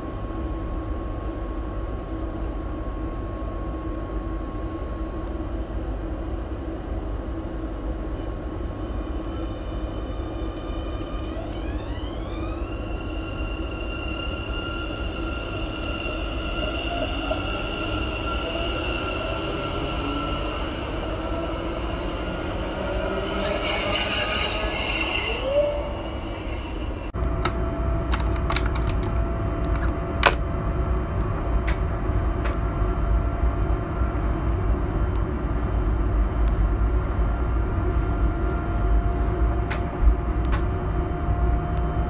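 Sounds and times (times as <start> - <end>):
train rumble from inside cab: 5.6 - 42.0
electric train passing: 6.3 - 28.0
high-pitched wheel tones: 9.1 - 27.1.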